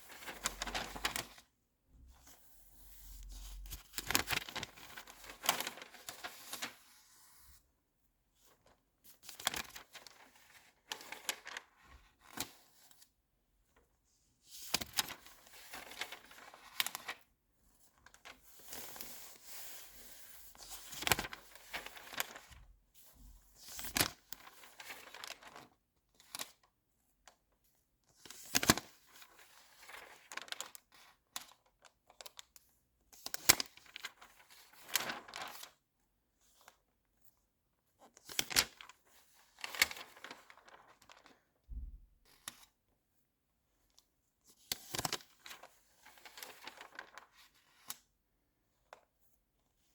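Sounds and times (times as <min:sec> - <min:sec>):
magazine pages turning: 0:00.1 - 0:01.4, 0:03.1 - 0:06.8, 0:21.0 - 0:22.5, 0:24.0 - 0:25.6, 0:33.6 - 0:35.6, 0:39.6 - 0:41.2, 0:44.9 - 0:47.2.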